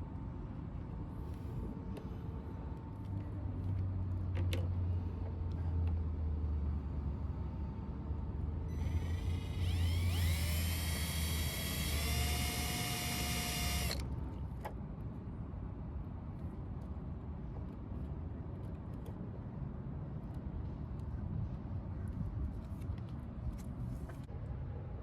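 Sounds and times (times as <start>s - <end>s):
electric drill whine: 8.7s - 14.0s.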